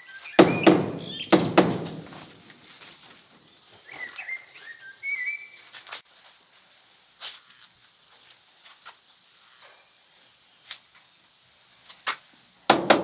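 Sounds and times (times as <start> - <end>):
heavy thuds: 0.4 - 2.6
bird whistling gliding calls: 3.8 - 5.7.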